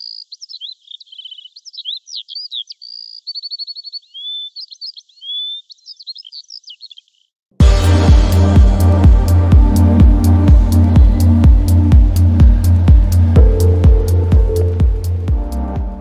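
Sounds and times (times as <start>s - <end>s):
songbird singing: 0.0s - 7.4s, 9.8s - 16.0s
electronic music with heavy bass: 7.6s - 16.0s.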